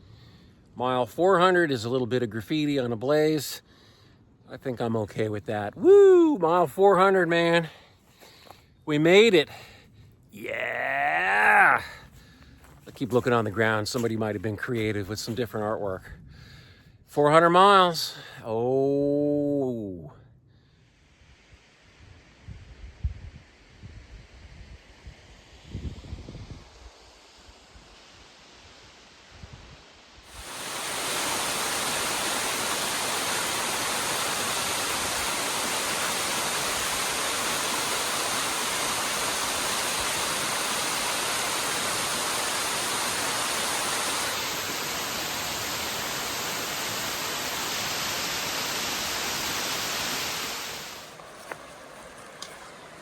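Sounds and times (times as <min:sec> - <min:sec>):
waterfall rushing: 0:30.3 - 0:53.0.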